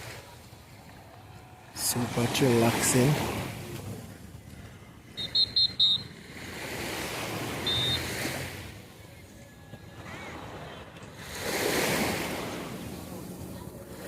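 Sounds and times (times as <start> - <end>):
sea waves washing on beach: 0.0 - 14.0
high chirps: 5.2 - 6.1, 7.7 - 8.0.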